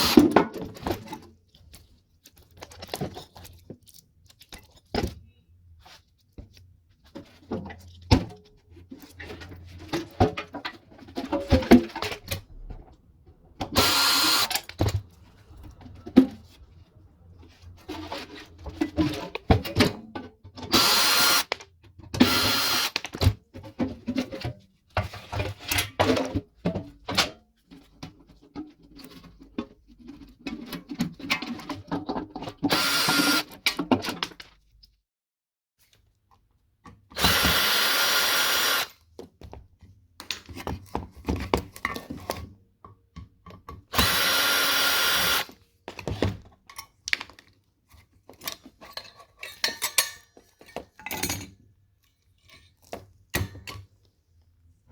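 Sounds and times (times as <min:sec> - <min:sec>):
power drill bursts: 0:13.8 - 0:14.6, 0:20.7 - 0:21.5, 0:22.2 - 0:23.0, 0:32.7 - 0:33.5, 0:37.2 - 0:38.9, 0:43.9 - 0:45.5.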